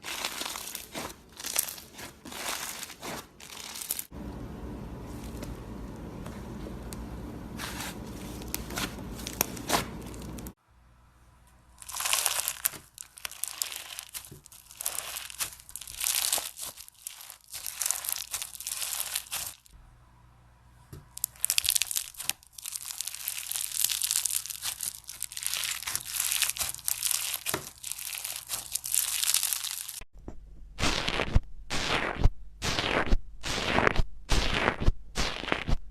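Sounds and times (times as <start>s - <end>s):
slime crackling: 0.0s - 4.1s, 7.6s - 10.6s, 11.8s - 19.8s, 21.1s - 30.0s
steady low hum: 4.1s - 11.8s.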